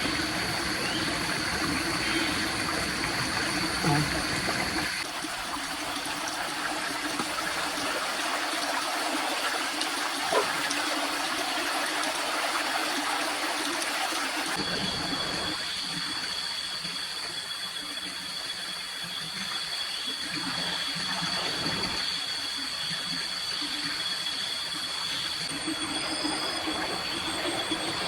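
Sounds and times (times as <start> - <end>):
water running: 0.0 - 15.5.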